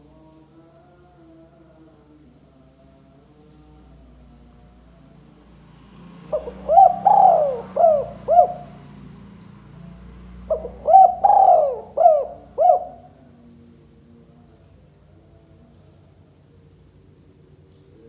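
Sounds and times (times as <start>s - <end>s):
dove cooing: 6.3s - 8.8s, 10.4s - 13.2s.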